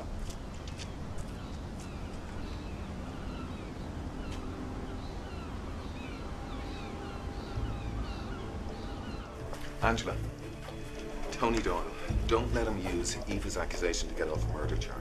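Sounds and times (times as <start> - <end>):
birds chirping: 0.0 - 15.0
low outdoor rumble: 0.0 - 15.0.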